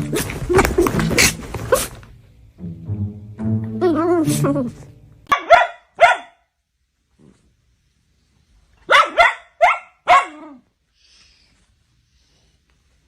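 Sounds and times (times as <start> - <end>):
dog barking: 5.3 - 6.5, 8.8 - 10.6.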